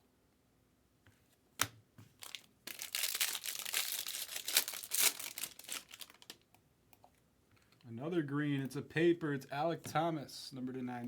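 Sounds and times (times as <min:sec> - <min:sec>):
foil wrapper crinkling and tearing: 0:02.2 - 0:06.4.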